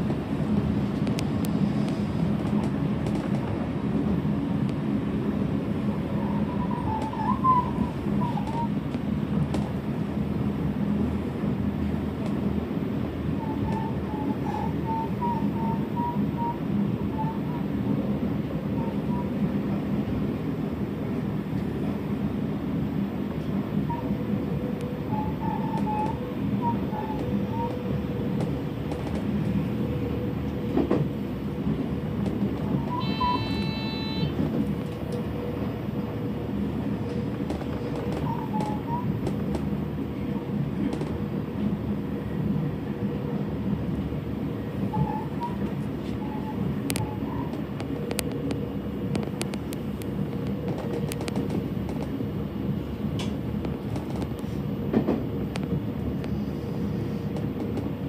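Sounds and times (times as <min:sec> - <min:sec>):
train wheels on rails: 0:00.0 - 0:58.0
faint wheel squeals: 0:06.1 - 0:08.8, 0:13.3 - 0:17.6, 0:25.1 - 0:27.8, 0:32.7 - 0:34.4, 0:37.0 - 0:39.2, 0:44.9 - 0:47.6
brief pitched tone: 0:32.8 - 0:34.4.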